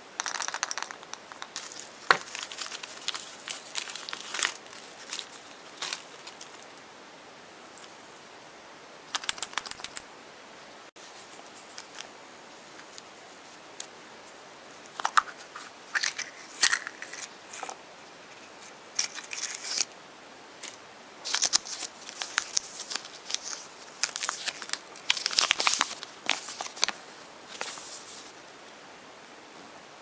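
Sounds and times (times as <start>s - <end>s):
foil wrapping crinkling: 0.2s - 6.8s, 21.3s - 28.3s.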